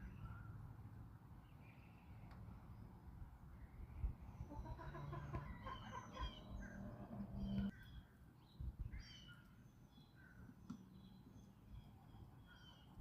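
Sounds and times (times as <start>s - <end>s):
small birds chirping: 0.0s - 13.0s
chickens clucking: 4.4s - 7.7s.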